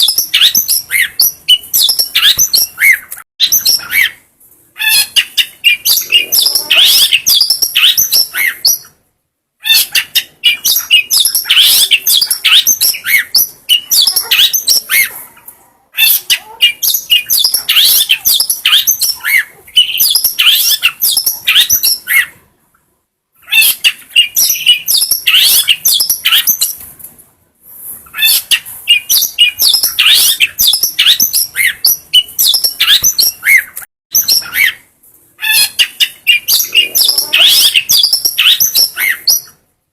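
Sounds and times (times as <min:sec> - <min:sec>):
shrike singing: 0:04.8 - 0:08.9, 0:35.6 - 0:39.5.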